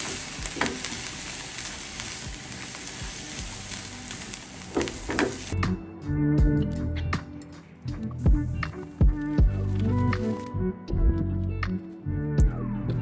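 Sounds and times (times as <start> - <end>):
onion and garlic sizzling: 0.0 - 5.6, 8.9 - 10.5.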